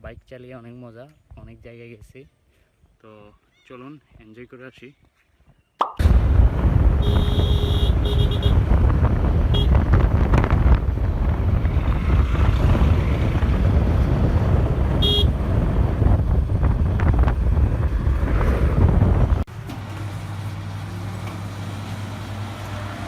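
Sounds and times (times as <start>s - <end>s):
wind rumble on microphone: 6.0s - 19.5s
horn beeps: 15.0s - 15.3s.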